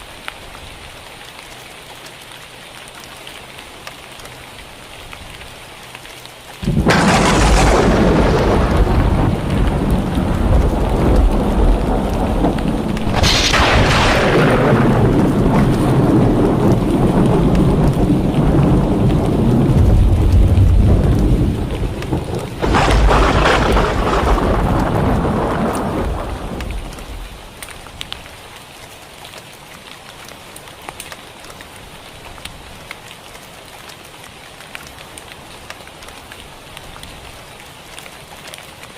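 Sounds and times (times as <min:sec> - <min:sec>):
heavy rain: 0:00.0 - 0:38.9
thunder rumbling: 0:06.6 - 0:27.5.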